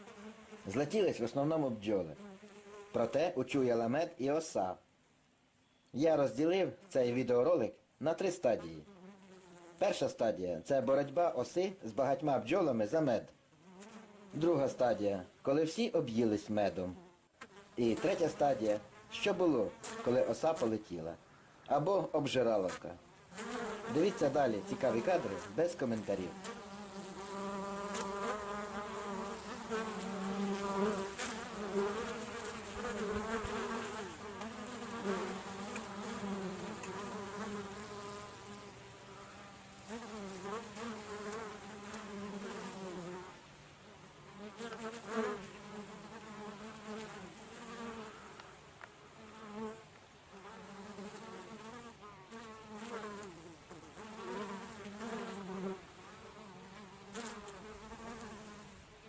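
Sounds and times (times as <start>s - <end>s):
bees buzzing in flight: 26.3s - 43.3s, 50.4s - 58.8s.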